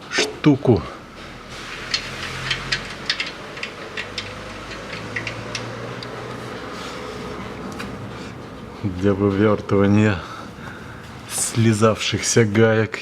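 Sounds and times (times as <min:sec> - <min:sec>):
hand tools clinking: 0:01.9 - 0:06.3.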